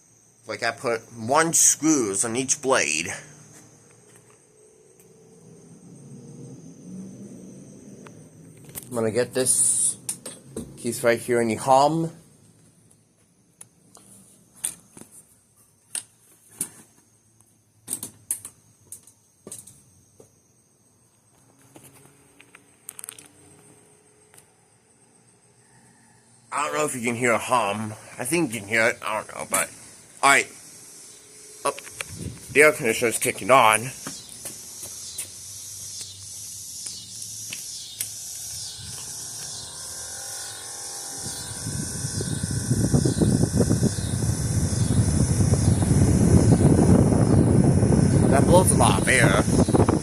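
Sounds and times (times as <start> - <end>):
night insects hissing: 0.0 - 50.0
ceiling fan motor hum: 26.5 - 50.0
sharp clicks: 34.0 - 39.6
air conditioner starting up: 37.8 - 50.0.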